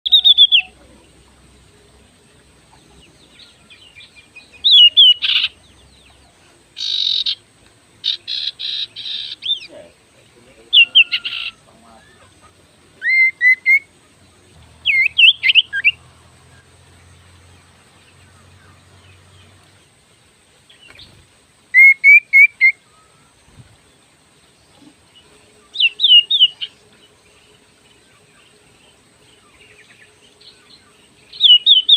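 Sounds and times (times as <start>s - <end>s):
bird whistling and chattering: 0.0s - 0.8s, 4.5s - 5.6s, 6.8s - 7.4s, 8.0s - 9.7s, 10.7s - 12.2s, 13.0s - 13.9s, 14.8s - 16.0s, 21.7s - 22.9s, 25.8s - 26.7s, 31.3s - 31.9s.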